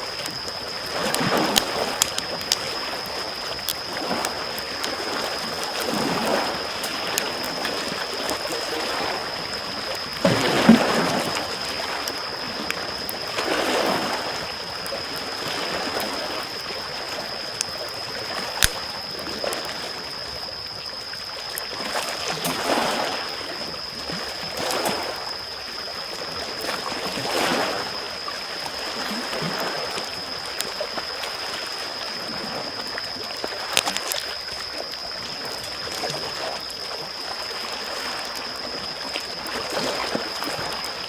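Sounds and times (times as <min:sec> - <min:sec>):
small waves washing on shore: 0:00.0 - 0:20.2
campfire crackling and popping: 0:00.0 - 0:20.5, 0:32.8 - 0:41.0.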